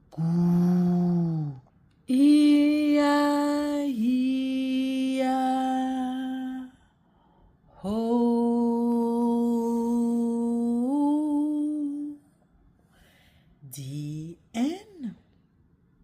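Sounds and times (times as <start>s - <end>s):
woman singing long held notes: 0.0s - 6.8s, 7.7s - 12.2s.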